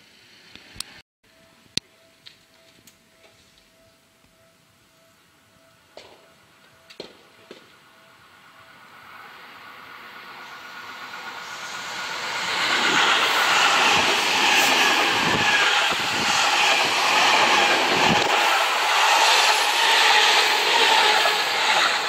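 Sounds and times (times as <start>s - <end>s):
train passing at speed: 4.4s - 22.0s.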